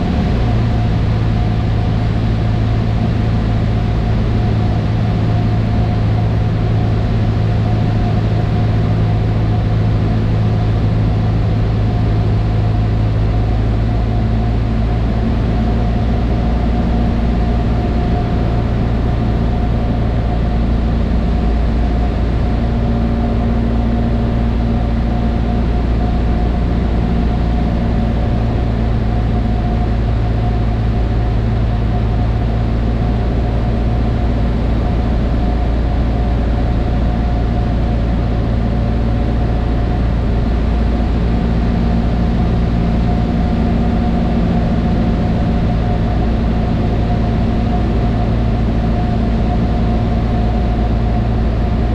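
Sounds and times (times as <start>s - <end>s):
light aircraft engine droning: 0.0s - 51.9s.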